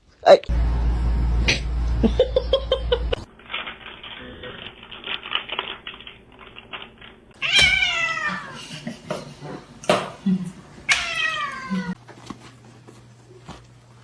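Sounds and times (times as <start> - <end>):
loud low rumble: 0.5 - 3.3
cat meowing: 7.4 - 8.6, 10.9 - 12.0.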